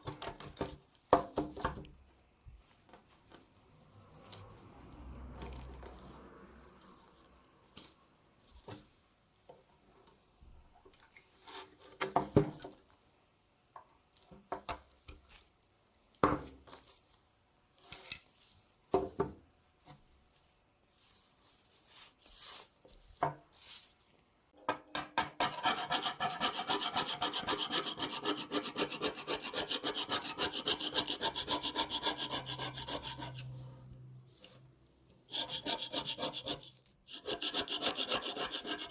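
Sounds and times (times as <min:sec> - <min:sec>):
knocks and scrapes on knife: 0:24.6 - 0:33.7, 0:35.3 - 0:38.9.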